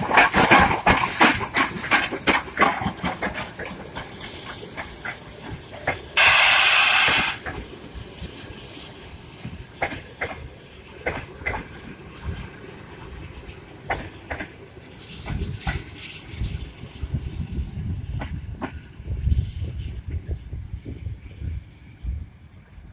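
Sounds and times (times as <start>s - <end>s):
train rail clicks and knocks: 0.0s - 20.5s
loud hiss: 4.1s - 10.7s.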